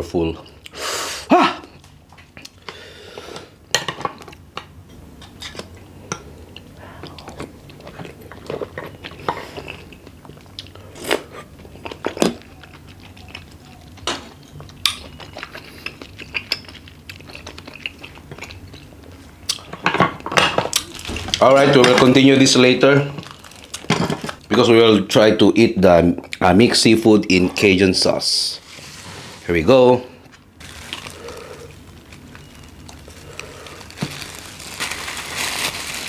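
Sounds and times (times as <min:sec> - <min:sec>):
person chewing: 0:05.3 - 0:19.7, 0:30.2 - 0:36.0.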